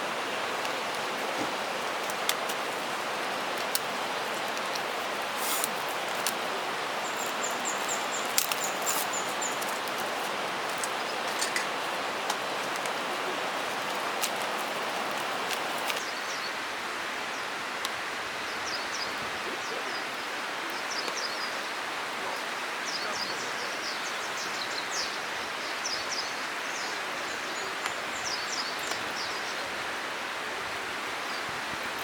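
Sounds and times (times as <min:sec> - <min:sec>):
small bird chirping: 0:07.0 - 0:11.7.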